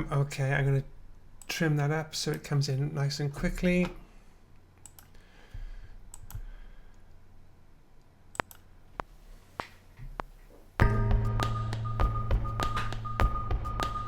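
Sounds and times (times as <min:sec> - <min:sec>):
faint hum: 0:00.0 - 0:14.0
computer mouse clicks: 0:04.8 - 0:05.2, 0:06.1 - 0:07.1, 0:08.3 - 0:08.7
rhythmic sample-based music: 0:10.8 - 0:14.0.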